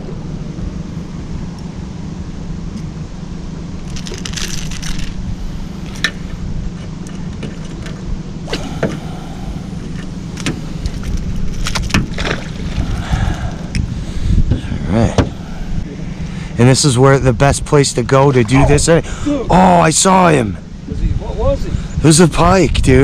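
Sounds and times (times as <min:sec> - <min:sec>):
boat motor humming: 0:00.0 - 0:16.6.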